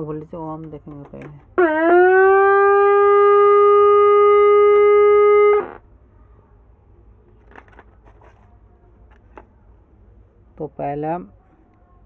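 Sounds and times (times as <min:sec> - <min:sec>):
tv speaker humming tone: 0:01.6 - 0:05.9.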